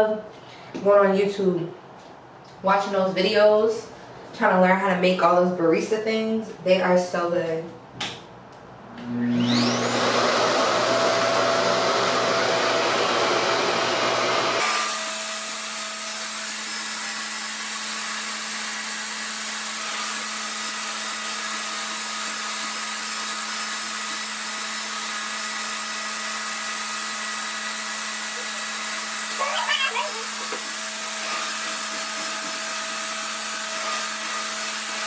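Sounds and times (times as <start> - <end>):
hair dryer motor whining: 8.9 - 35.0.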